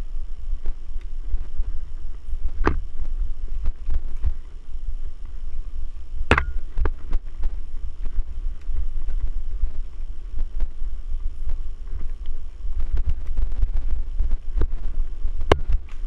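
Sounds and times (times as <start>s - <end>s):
wind buffeting microphone: 0.0s - 16.0s
bike knocks and rattles: 2.5s - 4.5s, 6.2s - 7.7s, 15.4s - 16.0s.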